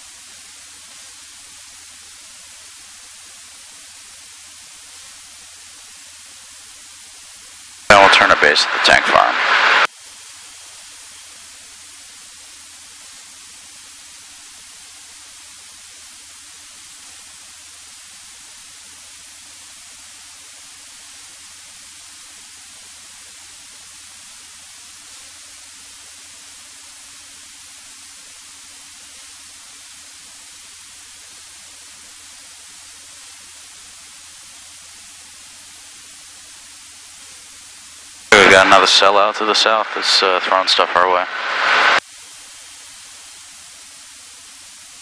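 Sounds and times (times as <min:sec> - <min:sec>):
static hiss: 0:00.0 - 0:45.0.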